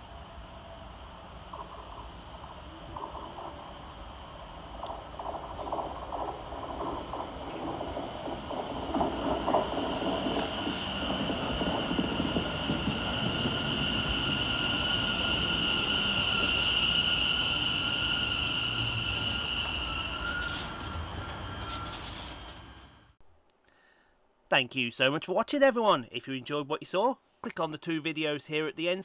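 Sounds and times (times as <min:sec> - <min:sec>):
train wheels rumbling and clattering: 0:00.0 - 0:23.2
high-pitched train squeal: 0:04.8 - 0:23.2.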